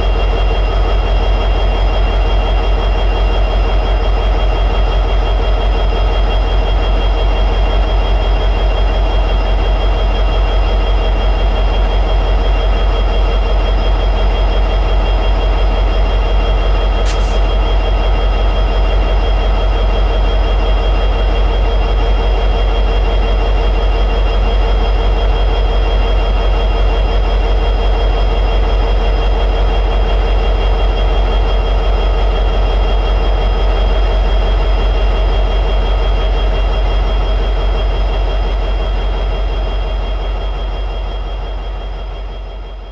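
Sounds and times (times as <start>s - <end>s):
diesel locomotive engine idling: 0.0s - 42.9s
high engine whine: 15.4s - 20.0s.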